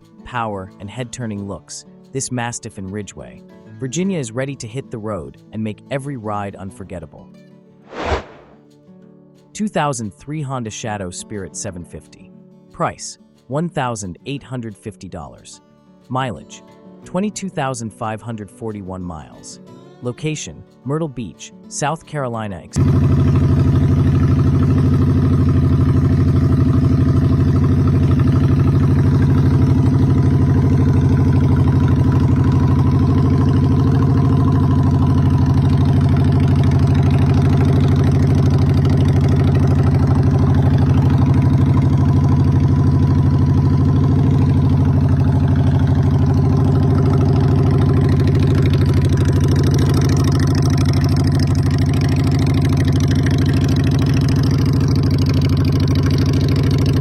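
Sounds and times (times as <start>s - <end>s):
motorcycle engine idling: 22.8s - 57.0s.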